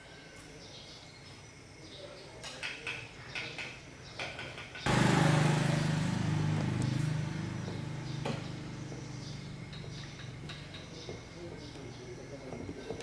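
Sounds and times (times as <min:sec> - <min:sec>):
motor humming: 0:04.9 - 0:11.5.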